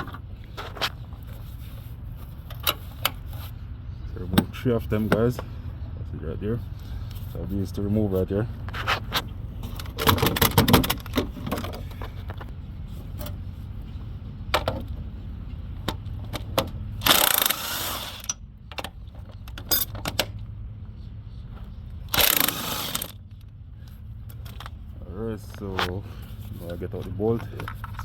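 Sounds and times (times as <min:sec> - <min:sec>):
low steady hum: 0:00.0 - 0:28.0
ratchet clicking: 0:17.0 - 0:18.4, 0:22.1 - 0:23.2.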